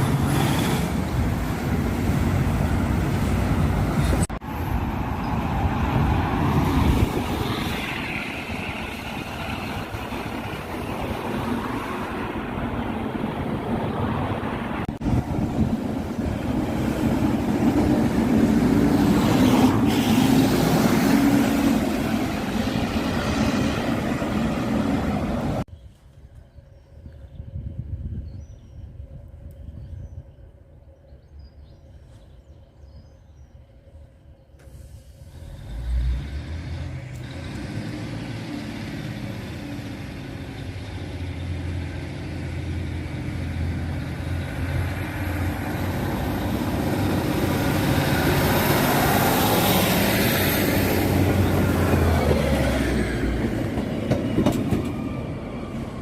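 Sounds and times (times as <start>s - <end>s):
heavy vehicle engine rumble: 0.0s - 25.7s
road or rail noise: 0.0s - 56.0s.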